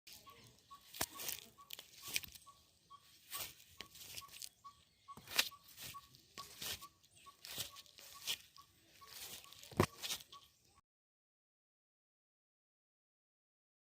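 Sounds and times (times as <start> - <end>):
small animal chirping: 0.1 - 10.6.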